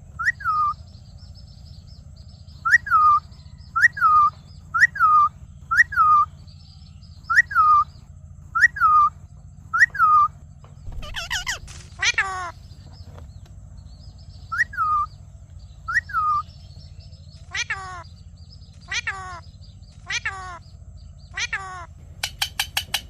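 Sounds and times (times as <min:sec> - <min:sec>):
parrot calling: 0:00.2 - 0:00.8, 0:02.6 - 0:06.3, 0:07.2 - 0:08.0, 0:08.6 - 0:12.9, 0:14.5 - 0:15.2, 0:15.8 - 0:16.6, 0:17.3 - 0:23.0
short bird chirps: 0:07.2 - 0:13.2.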